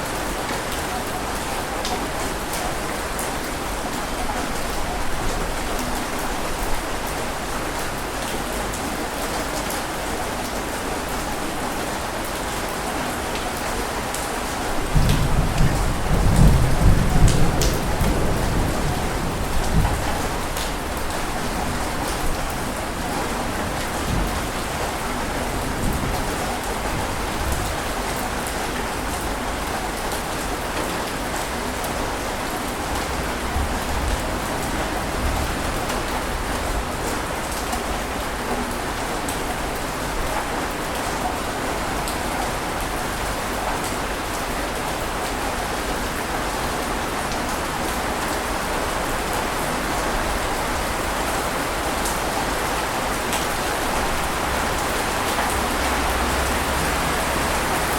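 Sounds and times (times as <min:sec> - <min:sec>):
water rushing: 0:41.7 - 0:57.9.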